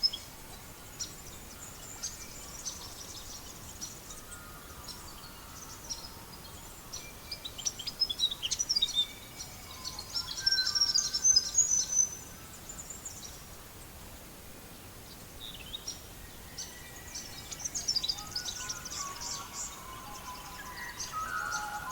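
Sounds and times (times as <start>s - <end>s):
steady background hiss: 0.0s - 21.9s
songbirds chirping and whistling: 15.4s - 21.9s.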